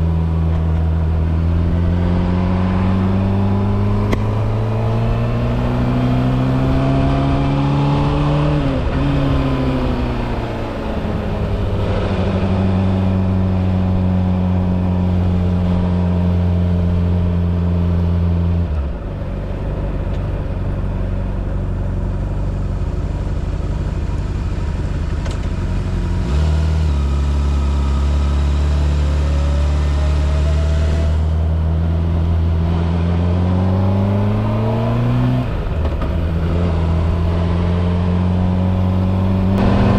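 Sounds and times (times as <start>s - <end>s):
motorcycle engine running: 0.0s - 29.7s.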